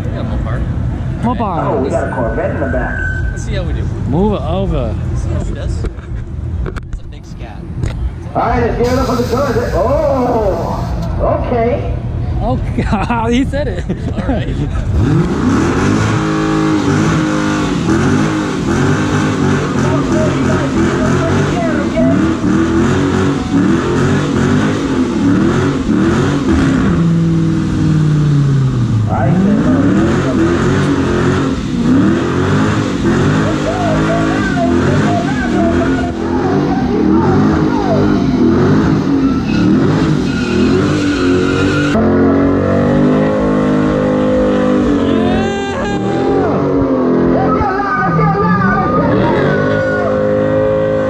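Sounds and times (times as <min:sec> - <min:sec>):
car engine revving: 0:14.3 - 0:51.0.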